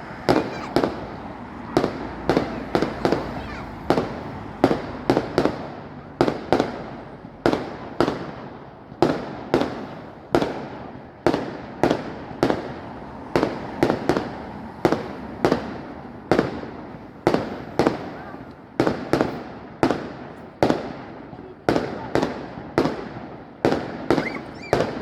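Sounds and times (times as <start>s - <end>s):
fireworks bangs with rolling echo: 0.0s - 25.0s.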